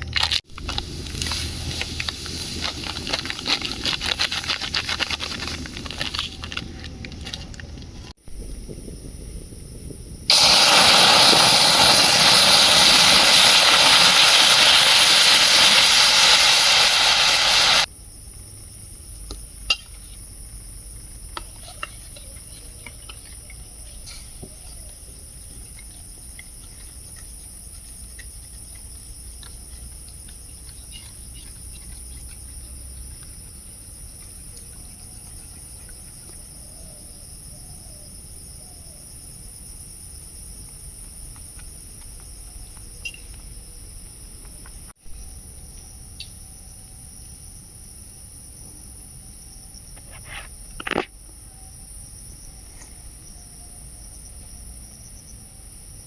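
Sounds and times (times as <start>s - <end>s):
forest insects droning: 0.0s - 56.0s
loud steady hiss: 0.5s - 7.0s, 8.2s - 20.4s.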